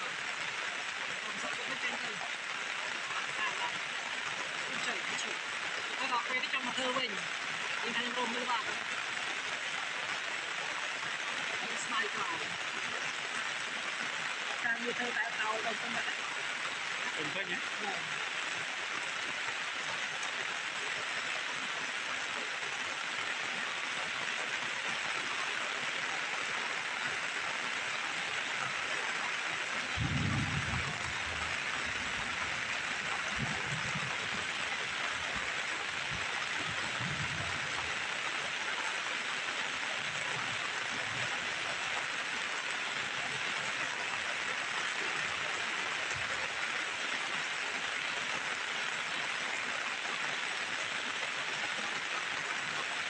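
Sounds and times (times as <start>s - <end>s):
steady rain falling: 0.0s - 53.0s
short low rumbles: 30.0s - 32.3s.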